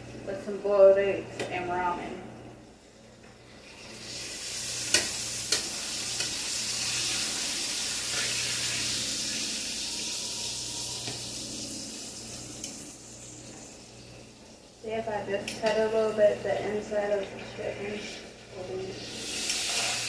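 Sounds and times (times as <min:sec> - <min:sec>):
chicken sizzling in a pan: 0:03.6 - 0:14.3, 0:18.8 - 0:20.0.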